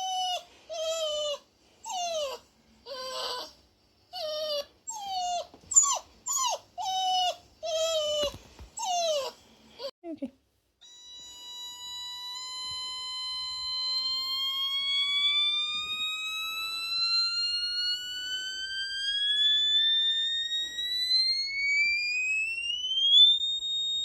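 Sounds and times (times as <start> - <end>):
electronic tone rising in pitch: 11.8 - 24.0.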